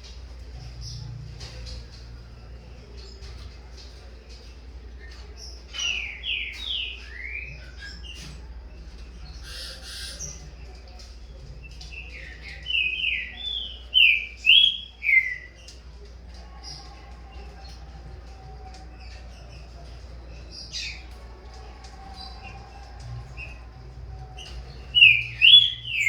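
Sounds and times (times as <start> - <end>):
bird singing whistled notes: 24.4 - 26.0.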